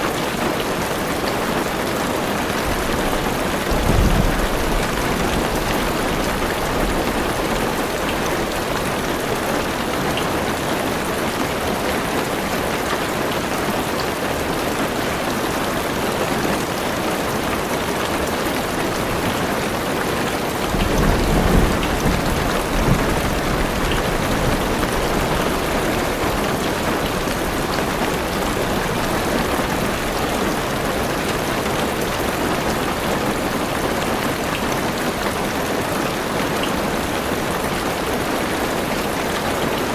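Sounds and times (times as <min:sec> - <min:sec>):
heavy rain on car roof: 0:00.0 - 0:39.9
thunder rumble: 0:02.7 - 0:09.7, 0:20.6 - 0:30.7.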